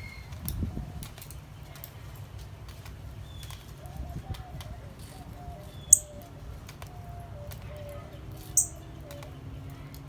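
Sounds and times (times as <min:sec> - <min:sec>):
soft low bird calls: 0:04.8 - 0:06.3, 0:08.6 - 0:09.2
songbird high chirps: 0:05.8 - 0:06.3, 0:08.6 - 0:09.2.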